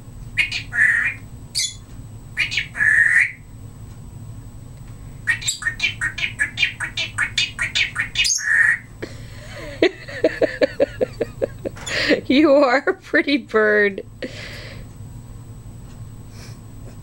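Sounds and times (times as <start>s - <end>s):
parrot mimicking pretty calls: 0.4s - 1.8s, 2.4s - 3.4s, 5.3s - 8.9s
parrot squawking: 0.4s - 1.8s, 2.4s - 3.4s, 5.3s - 8.9s.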